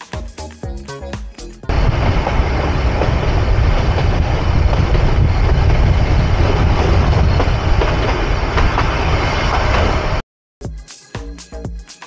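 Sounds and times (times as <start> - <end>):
train carriage rumbling: 1.7 - 10.2.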